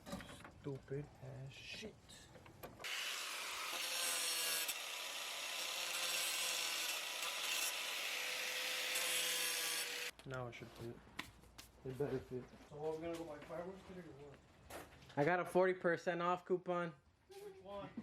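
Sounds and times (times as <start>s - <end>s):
power tool cutting: 2.8s - 10.1s.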